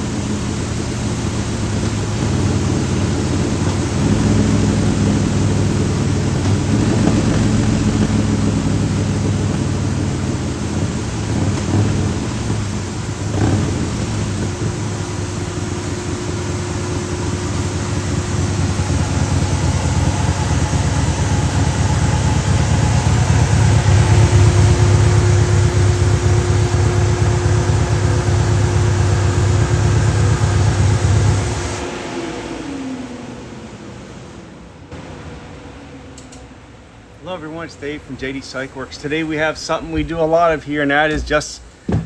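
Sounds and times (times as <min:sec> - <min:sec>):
motorcycle engine running loud: 0:00.0 - 0:31.9.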